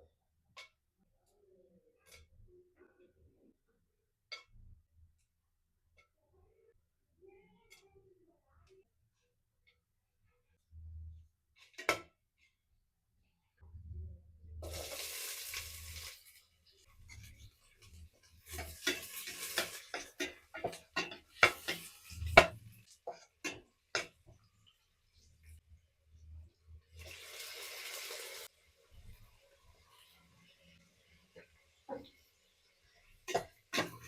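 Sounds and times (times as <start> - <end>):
food sizzling in a pan: 14.6 - 25.6, 26.8 - 34.0.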